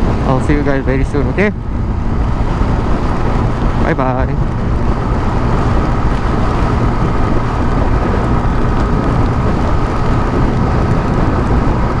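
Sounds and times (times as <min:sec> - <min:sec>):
motorcycle engine running: 0:00.0 - 0:12.0
wind rushing on microphone: 0:00.0 - 0:12.0.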